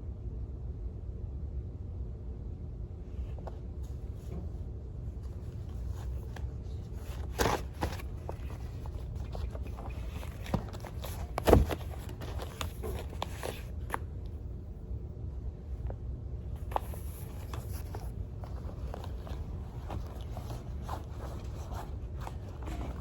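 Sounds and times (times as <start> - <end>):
low steady hum: 0.0 - 23.0
taps and rustles: 5.2 - 14.4, 16.6 - 23.0.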